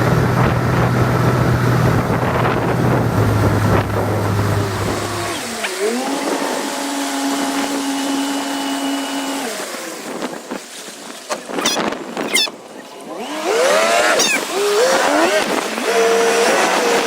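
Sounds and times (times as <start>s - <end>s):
boat motor humming: 0.0s - 17.0s
water noise: 0.0s - 17.0s
wind: 0.0s - 17.0s
quick high chirps: 11.6s - 12.5s, 14.2s - 14.4s.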